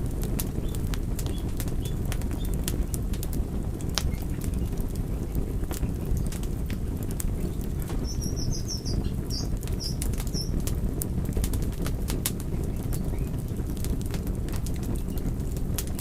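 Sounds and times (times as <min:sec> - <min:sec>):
fire crackling: 0:00.0 - 0:16.0
steady low rumble: 0:00.0 - 0:16.0
high chirps: 0:08.0 - 0:10.5.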